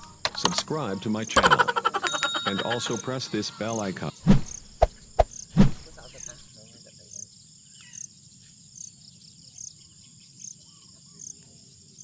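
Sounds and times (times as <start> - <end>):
high insect hum: 0.0 - 12.0
short high insect chirp: 4.2 - 6.4.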